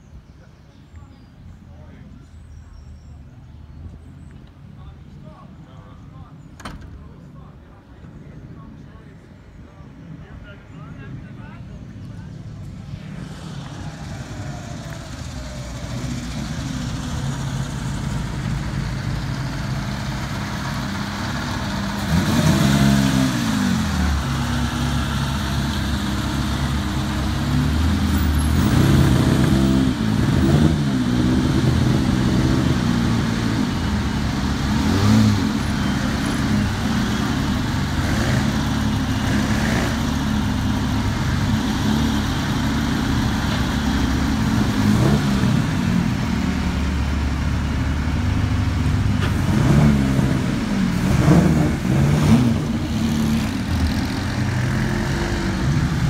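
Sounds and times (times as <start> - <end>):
racing car engines rumbling and revving: 3.1 - 56.0.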